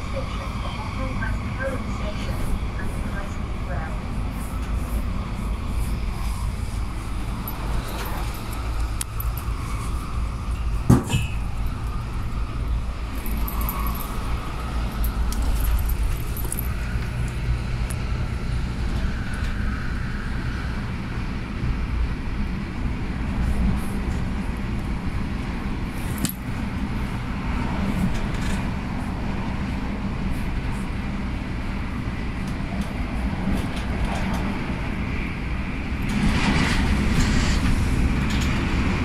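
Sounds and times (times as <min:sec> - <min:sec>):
train interior rumble: 0:00.0 - 0:39.0.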